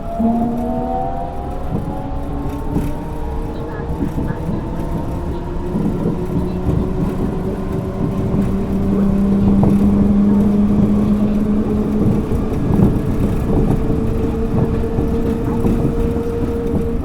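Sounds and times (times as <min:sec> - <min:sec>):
high tone: 0:00.0 - 0:02.4
train rumbling: 0:00.0 - 0:17.0.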